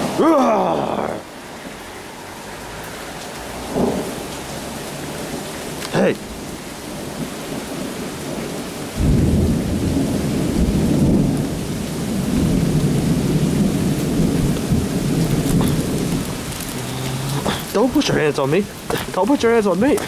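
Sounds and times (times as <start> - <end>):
steady rain: 0.0 - 20.0
thunder rumbling: 3.6 - 20.0.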